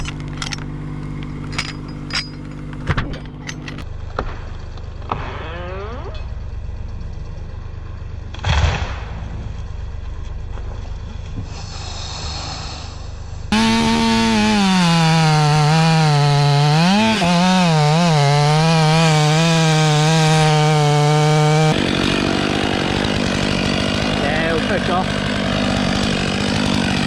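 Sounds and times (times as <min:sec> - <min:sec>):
chainsaw cutting through wood: 0:00.0 - 0:02.8, 0:13.5 - 0:27.0.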